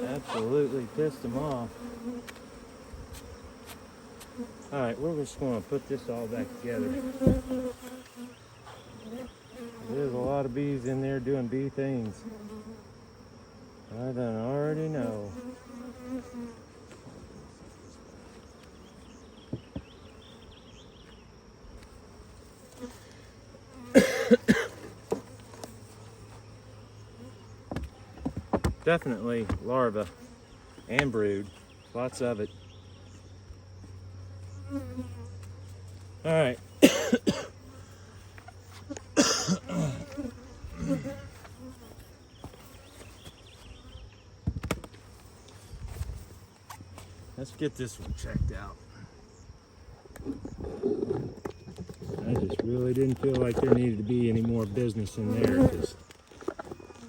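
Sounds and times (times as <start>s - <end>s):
bees buzzing: 0.0s - 57.0s.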